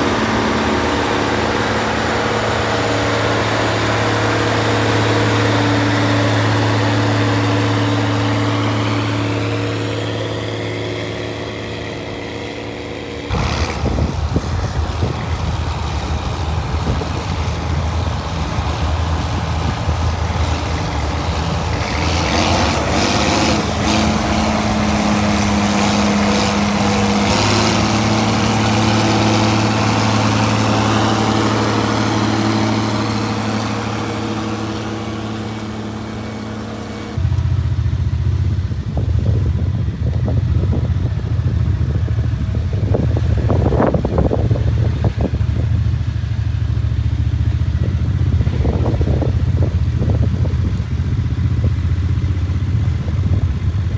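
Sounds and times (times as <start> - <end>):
rough tractor engine droning: 0.0 - 53.9
tractor engine running: 0.0 - 53.9.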